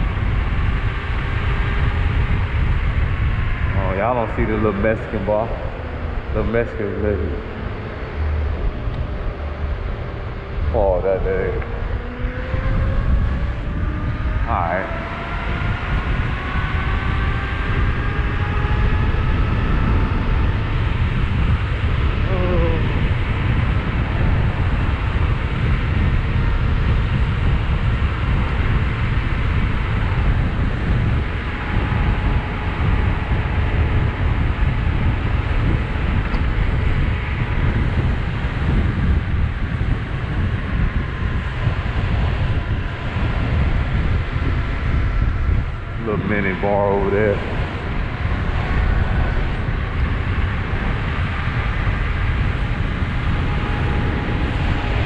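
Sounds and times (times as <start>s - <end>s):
wind rushing over microphone: 0.0s - 55.0s
electric motor whine: 0.1s - 55.0s.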